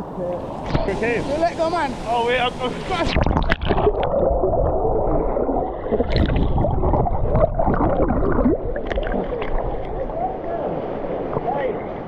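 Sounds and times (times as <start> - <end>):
water splash: 0.4 - 10.2
underwater gurgling and bubbling: 2.7 - 11.5.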